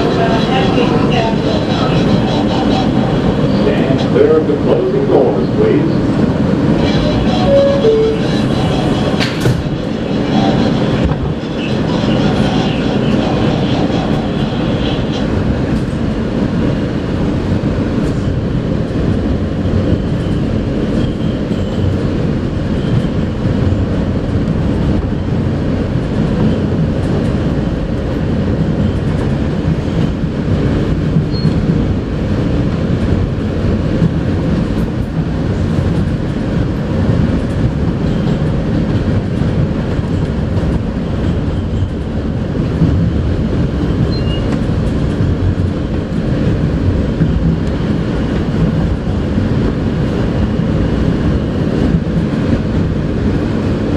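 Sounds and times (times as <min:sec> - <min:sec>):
rumble of train wheels on rail: 0:00.0 - 0:53.9
faint high tone: 0:07.4 - 0:08.5.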